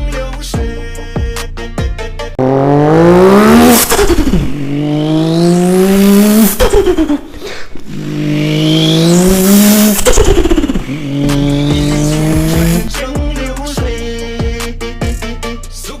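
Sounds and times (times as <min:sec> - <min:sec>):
car engine accelerating: 0:02.3 - 0:13.2.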